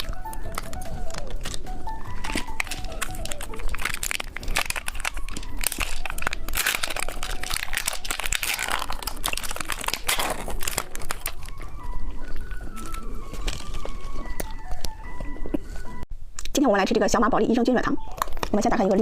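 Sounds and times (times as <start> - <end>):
plastic wrapper crinkling and tearing: 0.0 - 15.0.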